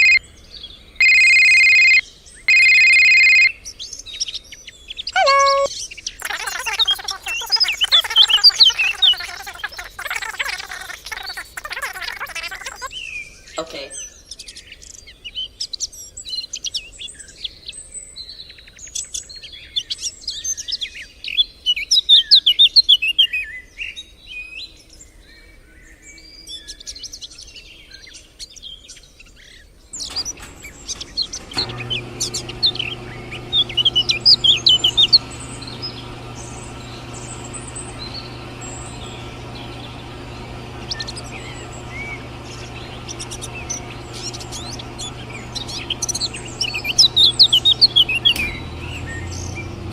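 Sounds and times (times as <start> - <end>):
small birds chirping: 5.1 - 13.6, 30.0 - 49.9
steady motor hum: 30.0 - 49.9.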